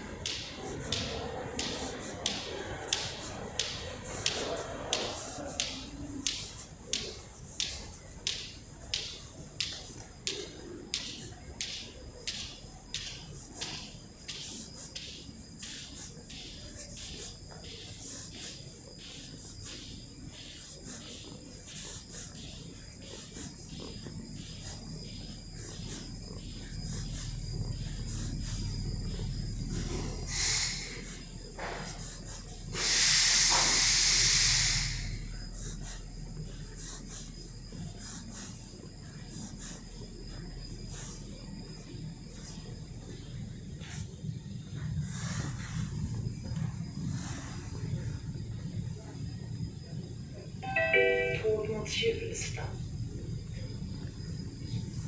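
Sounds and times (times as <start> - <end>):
metro train rumbling: 50.6 - 55.0.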